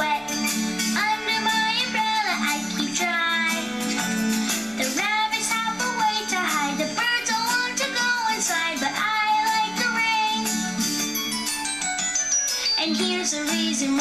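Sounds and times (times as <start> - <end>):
child singing: 0.0 - 0.3, 1.0 - 3.7, 4.8 - 10.5, 12.8 - 14.0
instrumental backing track: 0.0 - 14.0.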